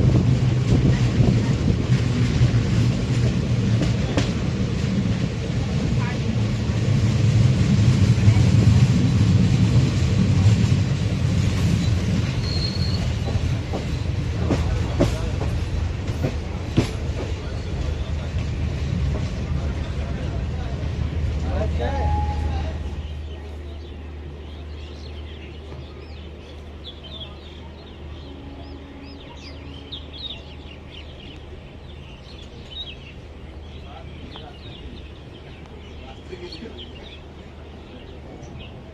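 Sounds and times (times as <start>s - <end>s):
train rumbling at speed: 0.0s - 38.9s
high squeal: 12.3s - 13.3s
small birds chirping: 22.8s - 38.9s.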